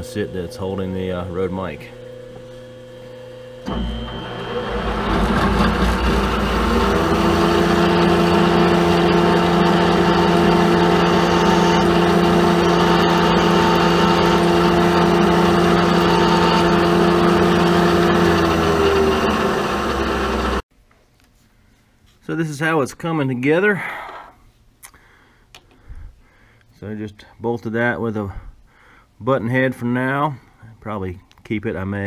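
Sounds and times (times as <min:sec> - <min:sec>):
machine tool motor humming: 0:00.0 - 0:20.6.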